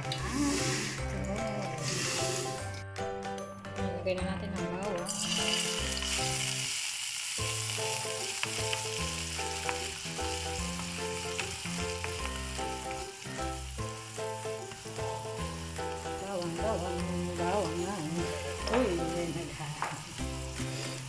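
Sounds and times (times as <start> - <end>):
instrumental background music: 0.0 - 21.0
garlic sizzling in oil: 1.8 - 2.7, 5.0 - 21.0.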